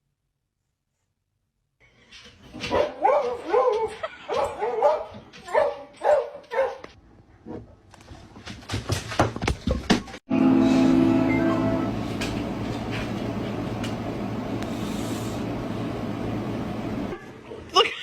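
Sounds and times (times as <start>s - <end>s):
dog barking whiny: 2.7s - 6.9s.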